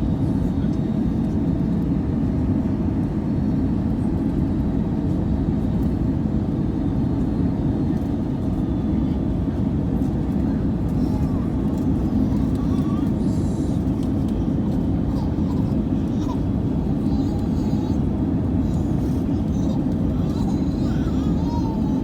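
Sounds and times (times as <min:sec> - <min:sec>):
airliner cabin engine roar: 0:00.0 - 0:22.0.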